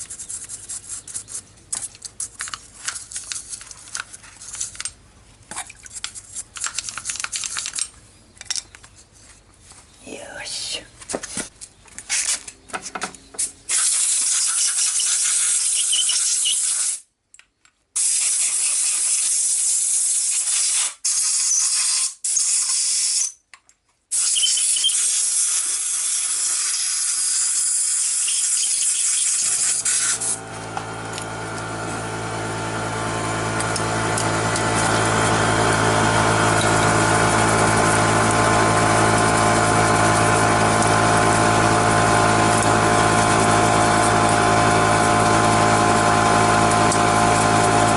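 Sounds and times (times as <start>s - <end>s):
compressed air hissing blasts: 28.5s - 30.5s
motor-driven machine humming: 29.3s - 47.9s.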